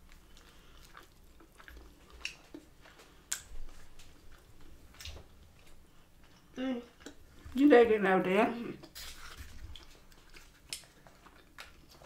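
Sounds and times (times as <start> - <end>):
person chewing: 0.0 - 7.6, 8.8 - 12.0
wet mouth clicks and smacks: 3.3 - 3.5, 10.6 - 12.0.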